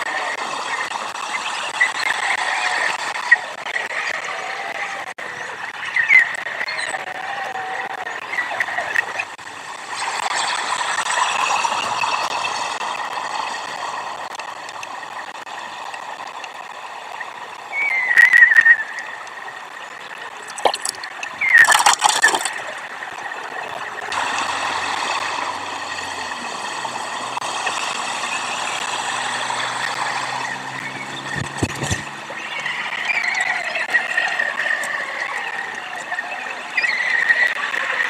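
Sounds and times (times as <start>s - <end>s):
road traffic noise: 23.9s - 33.8s
low engine hum: 24.0s - 33.2s.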